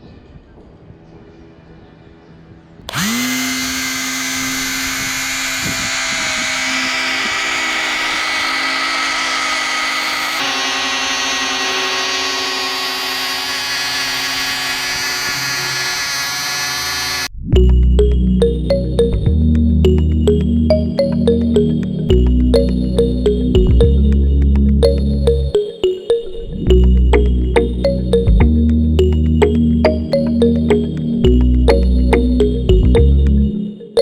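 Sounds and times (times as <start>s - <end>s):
small electric fan motors whining: 2.9s - 17.3s.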